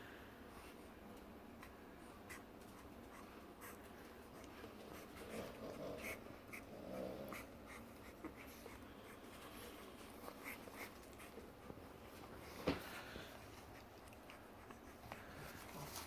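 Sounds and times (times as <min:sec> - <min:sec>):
puppy vocal sounds: 0:03.6 - 0:11.8.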